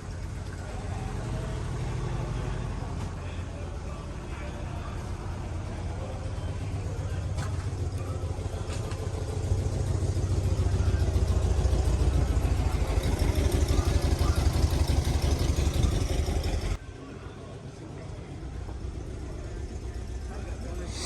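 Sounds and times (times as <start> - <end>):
car engine pulsing: 5.5 - 16.8.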